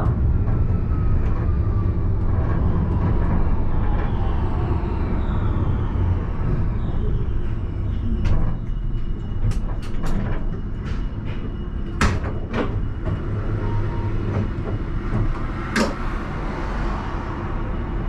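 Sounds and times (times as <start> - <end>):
tram rumbling on rails: 0.0 - 18.0.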